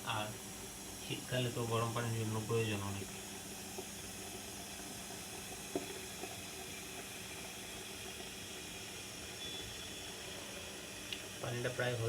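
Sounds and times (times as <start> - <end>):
electric kettle heating water: 0.0 - 12.0.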